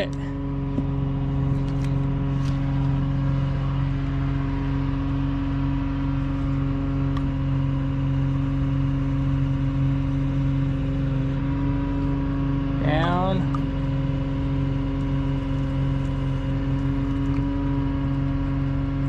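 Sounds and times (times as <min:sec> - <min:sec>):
hoisting machine engine running: 0:00.0 - 0:19.0.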